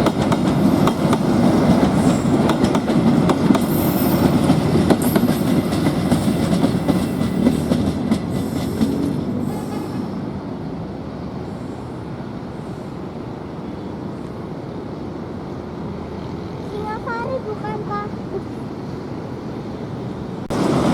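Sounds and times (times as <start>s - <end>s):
train wheels clattering: 0.0s - 10.0s
train rumble: 0.0s - 20.9s.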